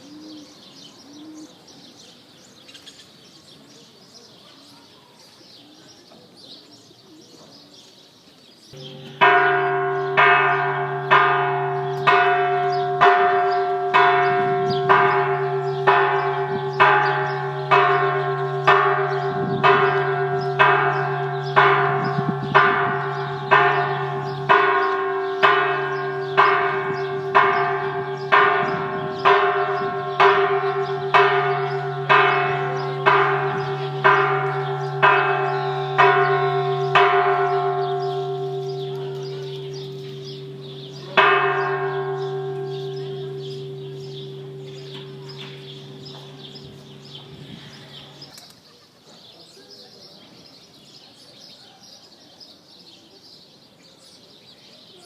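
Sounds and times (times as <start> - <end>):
church bell tolling: 8.7 - 48.3.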